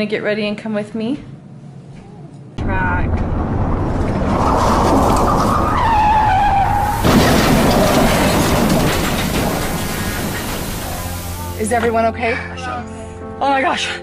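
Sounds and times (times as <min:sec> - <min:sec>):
car crash impact: 0:02.6 - 0:11.9
car tyres skidding and squealing: 0:03.7 - 0:11.5.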